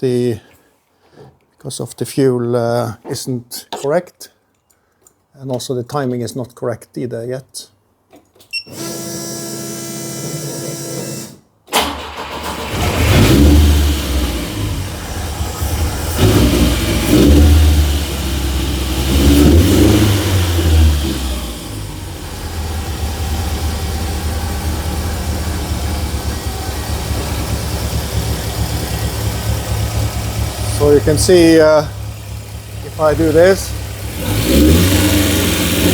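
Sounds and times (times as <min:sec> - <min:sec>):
car engine starting and revving: 0:11.8 - 0:35.9
steady whine: 0:21.6 - 0:34.3.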